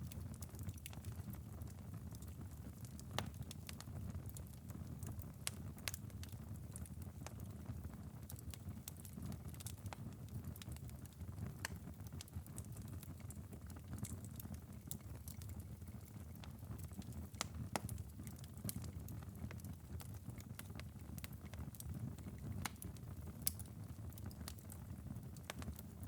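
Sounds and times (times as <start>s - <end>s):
embers crackling and popping: 0.0s - 26.0s
low fire hiss and rumble: 0.0s - 26.0s.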